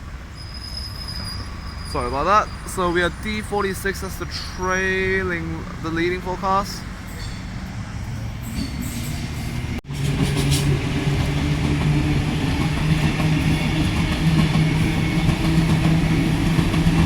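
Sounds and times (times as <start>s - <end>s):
train rolling noise: 0.0s - 17.0s.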